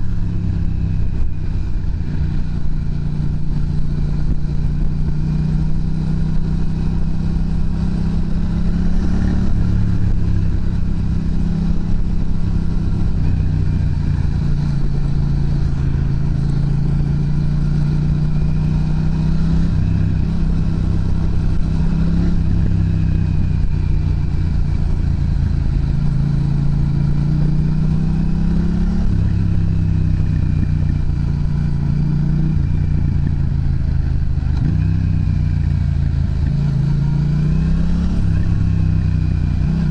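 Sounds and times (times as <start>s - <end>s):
motorcycle engine exhaust: 0.0s - 39.9s.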